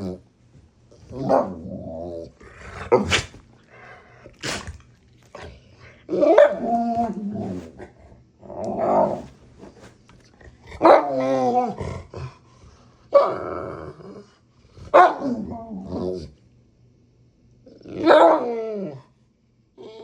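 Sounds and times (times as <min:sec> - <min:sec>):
dog growling barks and yowls: 0:01.0 - 0:03.4, 0:04.4 - 0:09.3, 0:10.6 - 0:12.4, 0:13.1 - 0:16.4, 0:17.6 - 0:19.1
dog sharp noisy bursts: 0:03.0 - 0:03.4, 0:04.4 - 0:04.8.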